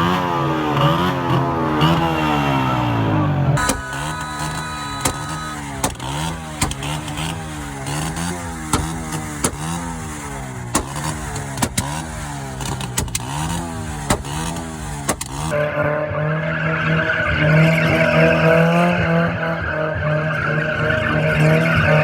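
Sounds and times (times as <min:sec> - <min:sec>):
vehicle engine revving in blips: 0:00.0 - 0:22.0
sharp exhaust cracks: 0:03.6 - 0:15.6.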